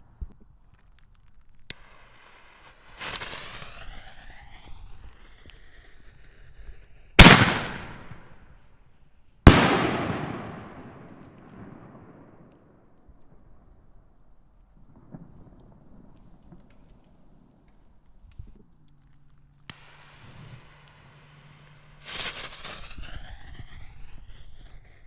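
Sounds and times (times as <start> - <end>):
firework hissing and crackling: 1.6 - 8.3, 9.5 - 12.2, 19.7 - 25.0
firework booming bursts: 7.2 - 8.2, 9.5 - 12.5
firework launch pop: 7.2 - 8.3, 9.5 - 12.6.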